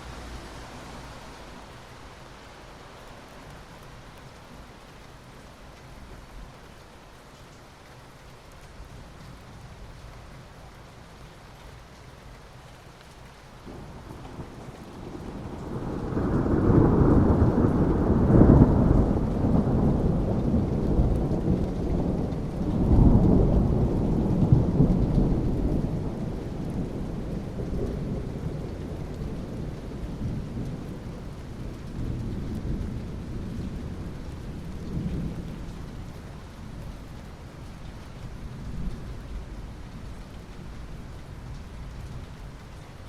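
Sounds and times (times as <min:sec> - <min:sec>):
steady rain: 0:00.0 - 0:43.0
rolling thunder: 0:13.7 - 0:36.2.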